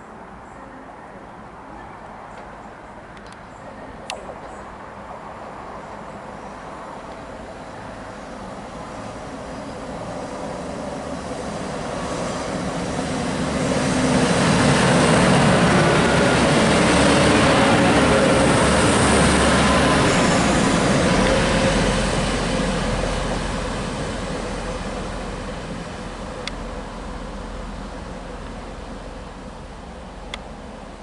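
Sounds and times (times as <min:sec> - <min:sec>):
train passing at speed: 0:00.0 - 0:31.0.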